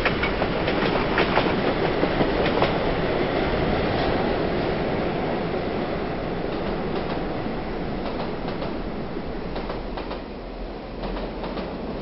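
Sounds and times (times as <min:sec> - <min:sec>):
wheels clicking over rail joints: 0:00.0 - 0:02.8.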